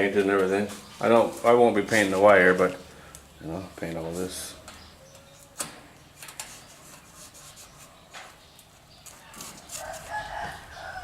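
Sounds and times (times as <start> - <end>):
rooster crowing: 9.7 - 11.0.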